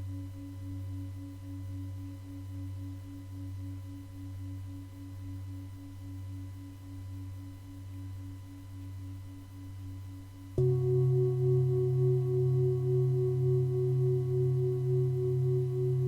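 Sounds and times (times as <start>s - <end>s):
low singing bowl tones pulsing: 10.5s - 16.0s
higher singing bowl tones: 10.6s - 16.0s.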